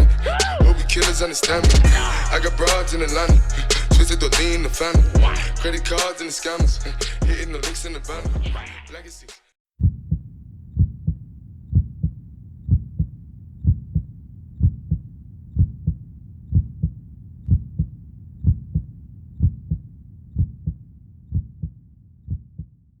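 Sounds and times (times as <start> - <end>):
heartbeat thumping: 0.0 - 1.0, 1.6 - 2.2, 3.3 - 4.3, 5.0 - 5.4, 6.6 - 7.6, 8.3 - 8.6, 9.8 - 22.8.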